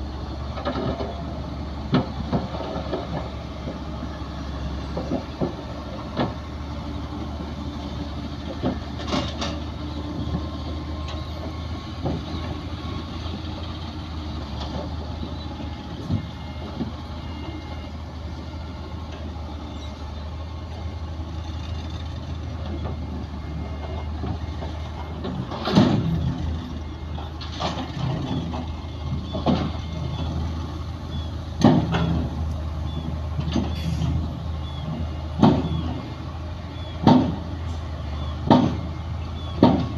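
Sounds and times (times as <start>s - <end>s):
heavy diesel machinery running: 0.0s - 39.9s
metallic clanks and knocks: 8.5s - 9.7s, 24.2s - 26.4s, 31.6s - 32.4s, 38.4s - 38.9s.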